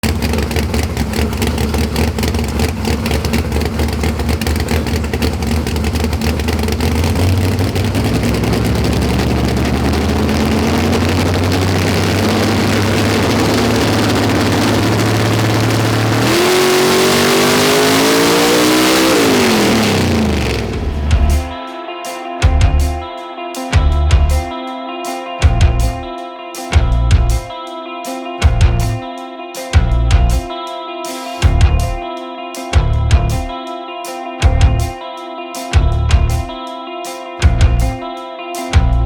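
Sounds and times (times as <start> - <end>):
drag car engine revving: 0.0 - 21.6.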